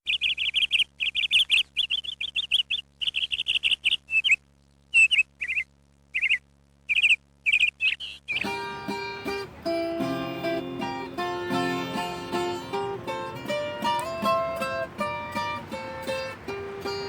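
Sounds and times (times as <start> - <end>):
songbird chirping: 0.0 - 8.6
acoustic guitar music: 8.3 - 17.0.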